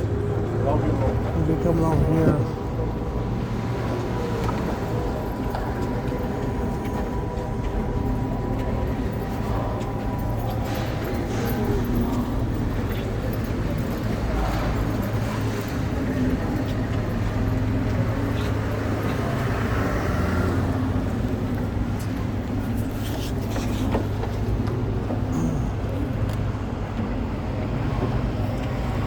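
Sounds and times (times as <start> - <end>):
road noise: 0.0 - 29.0.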